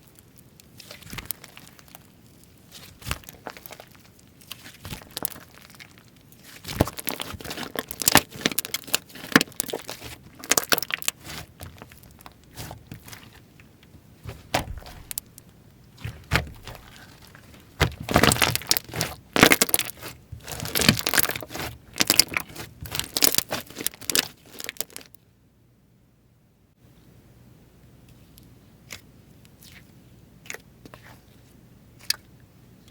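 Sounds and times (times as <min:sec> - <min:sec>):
slime crackling and popping: 0:00.0 - 0:25.2.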